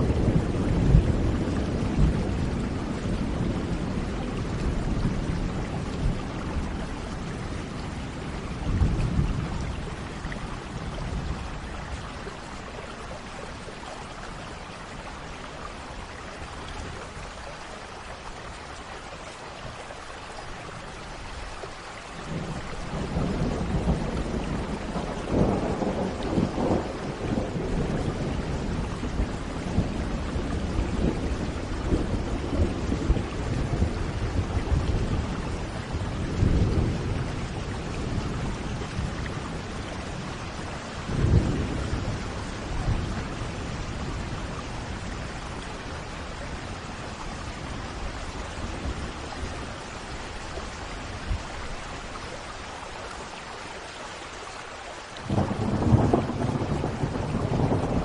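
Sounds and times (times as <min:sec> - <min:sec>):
rolling thunder: 0:00.0 - 0:12.1, 0:22.2 - 0:49.8, 0:55.2 - 0:58.0
steady rain: 0:00.0 - 0:58.0
thunder cracks: 0:55.3 - 0:58.0.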